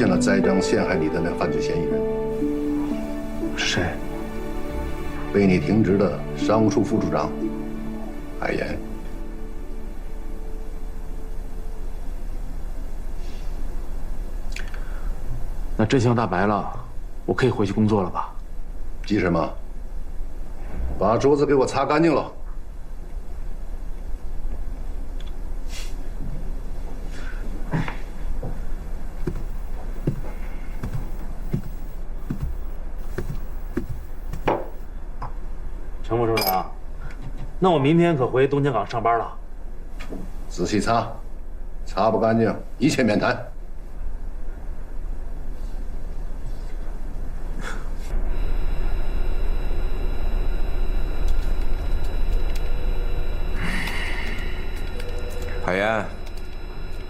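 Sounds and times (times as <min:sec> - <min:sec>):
steady low hum: 0:02.0 - 0:21.1, 0:22.4 - 0:35.9, 0:43.6 - 0:57.0
soft knocks and clicks: 0:29.2 - 0:34.9.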